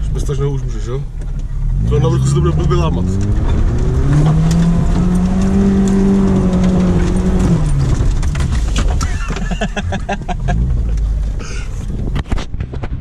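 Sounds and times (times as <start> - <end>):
off-road vehicle engine: 0.0 - 13.0
knocks and rattles: 3.2 - 13.0.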